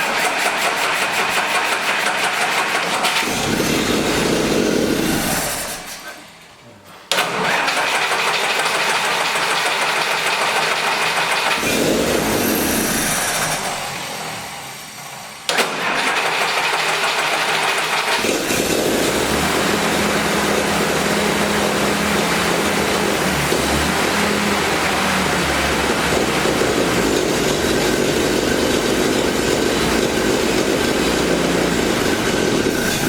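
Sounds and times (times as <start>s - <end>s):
starter motor cranking: 0.0s - 6.2s, 7.1s - 14.1s, 15.5s - 33.0s
engine idling: 7.4s - 33.0s.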